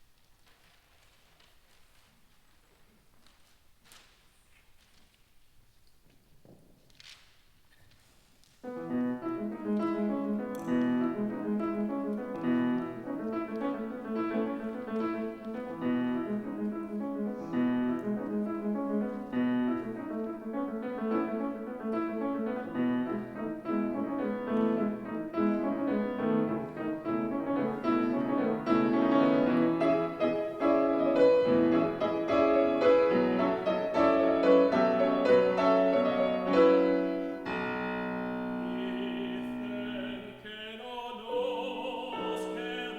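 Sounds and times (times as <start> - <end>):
fast piano passage: 8.6 - 40.5.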